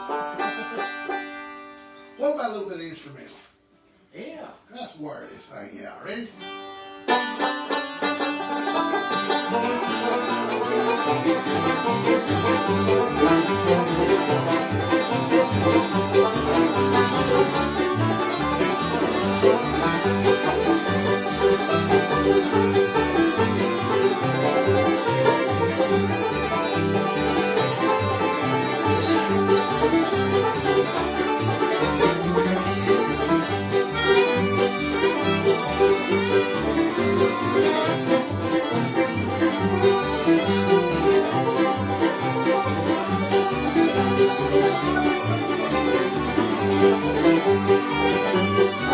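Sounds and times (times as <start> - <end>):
banjo: 0.0 - 3.4, 6.0 - 48.9
fiddle: 0.0 - 3.4, 5.3 - 48.9
guitar: 0.0 - 4.0, 5.9 - 48.9.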